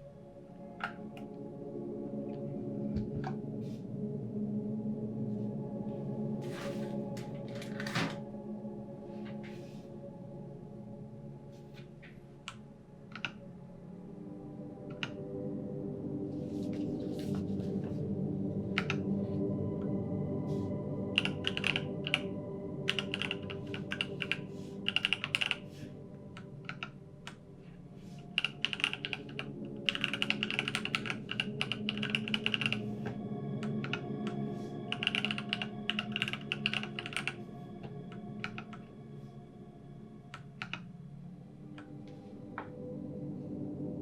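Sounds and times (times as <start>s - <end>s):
mechanical keyboard typing: 21.2s - 22.2s, 22.9s - 25.6s, 28.4s - 32.8s, 34.9s - 37.3s.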